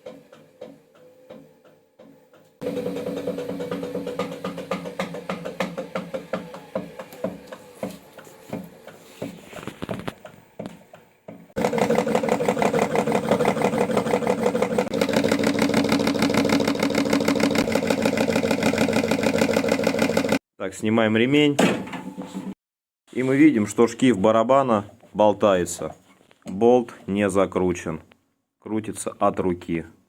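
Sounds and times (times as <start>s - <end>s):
washing machine rhythmic knock: 0.0s - 9.0s, 10.2s - 20.4s
washing machine hum: 0.0s - 20.4s.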